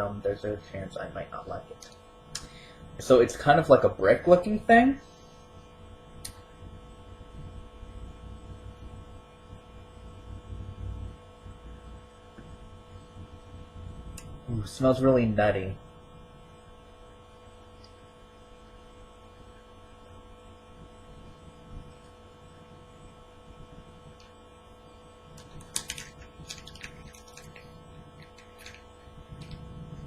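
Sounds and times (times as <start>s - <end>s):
electrical mains hum: 0.0s - 30.0s
crackling clicks: 25.4s - 29.6s.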